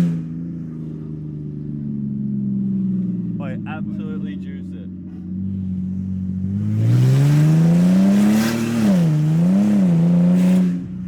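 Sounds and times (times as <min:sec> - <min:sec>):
straight-piped engine revving: 0:00.0 - 0:01.0, 0:03.4 - 0:11.0.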